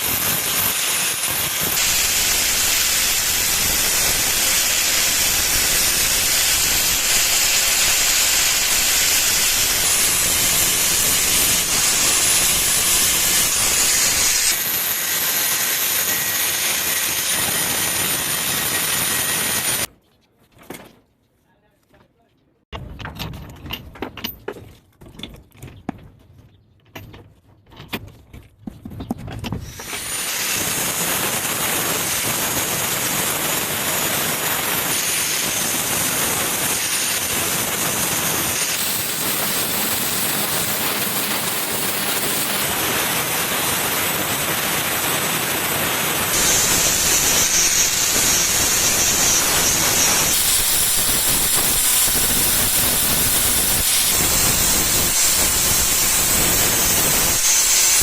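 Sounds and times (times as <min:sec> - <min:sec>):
compressed air hissing: 0:01.7 - 0:14.6, 0:38.5 - 0:42.8, 0:46.2 - 0:58.0.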